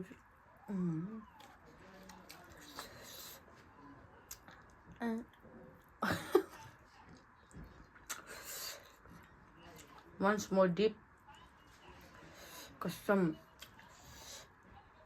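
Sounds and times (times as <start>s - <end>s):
noisy breaths: 12.0s - 12.8s.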